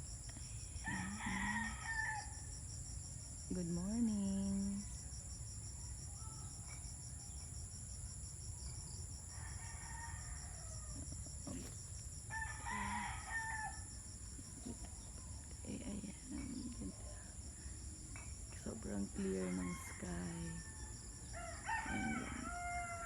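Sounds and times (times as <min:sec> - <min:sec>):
high pulsing insect trill: 0:00.0 - 0:23.0
faint rooster crowing: 0:00.8 - 0:02.4, 0:09.3 - 0:11.6, 0:12.3 - 0:14.0, 0:19.2 - 0:23.0.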